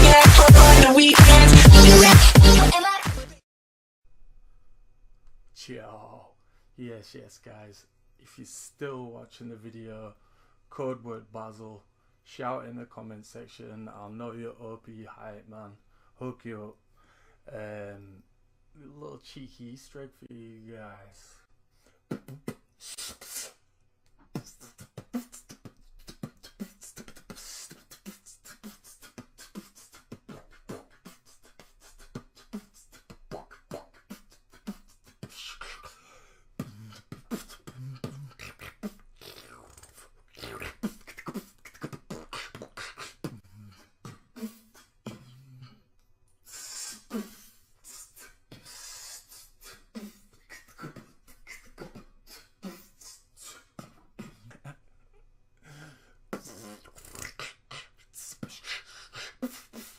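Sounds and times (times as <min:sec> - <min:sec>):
person beatboxing: 0:00.0 - 0:03.4, 0:22.1 - 0:23.6, 0:24.2 - 0:45.8, 0:46.5 - 0:54.8, 0:55.7 - 0:59.9.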